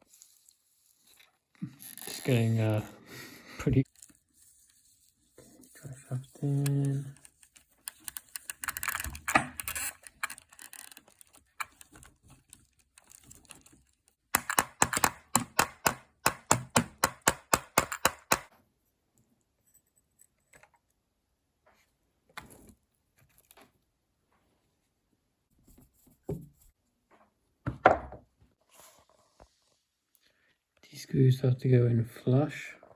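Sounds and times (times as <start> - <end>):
small parts clicking and rattling: 6.4 - 18.5
rapid sharp clicks: 14.4 - 18.5.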